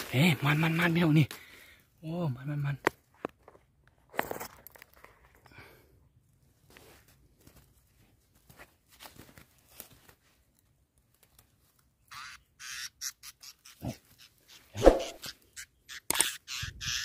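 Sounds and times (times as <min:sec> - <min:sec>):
bird distress squawks: 0:12.1 - 0:17.0.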